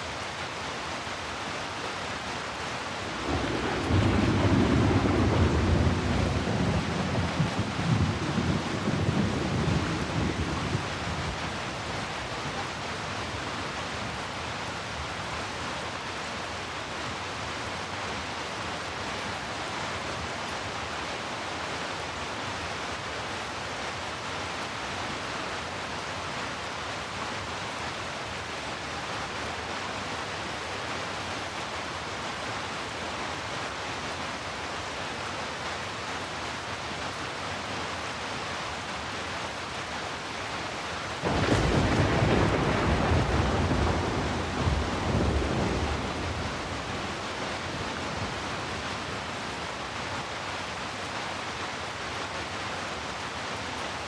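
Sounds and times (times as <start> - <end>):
heavy rain falling: 0.0 - 54.0
loud rumble of thunder: 3.1 - 11.3, 41.2 - 48.8.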